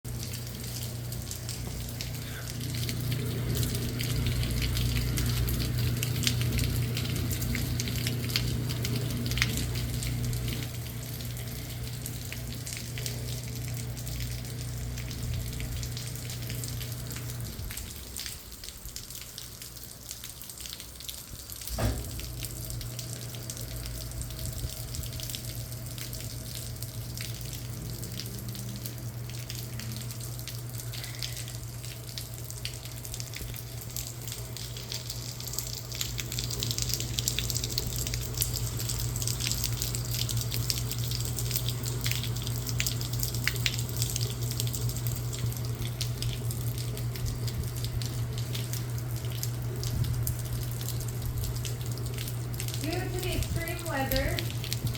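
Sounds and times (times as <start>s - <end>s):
rain falling: 0.1s - 54.9s
steady low hum: 0.1s - 54.9s
water running and dripping: 0.1s - 54.9s
short thump: 21.7s - 22.2s.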